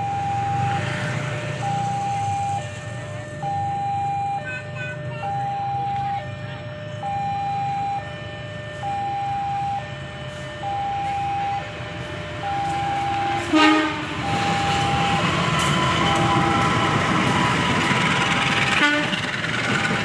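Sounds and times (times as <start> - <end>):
two-tone crossing alarm: 0.0 - 20.0
train running noise: 7.8 - 20.0
train horn blast: 12.0 - 14.9, 15.5 - 17.0, 18.3 - 19.3.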